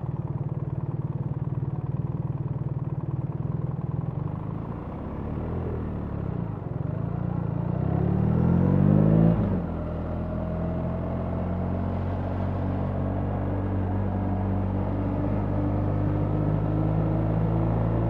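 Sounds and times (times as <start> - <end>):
motorcycle engine accelerating: 4.0 - 18.0.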